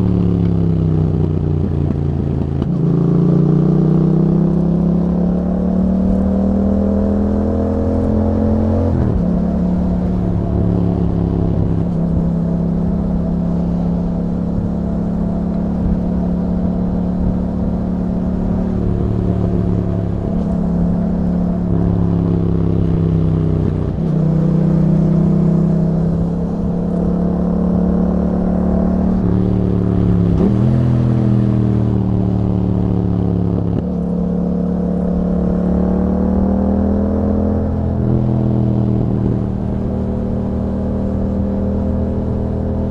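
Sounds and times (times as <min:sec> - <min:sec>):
motorcycle engine revving: 0:00.0 - 0:42.9
gear changes: 0:05.8 - 0:35.6.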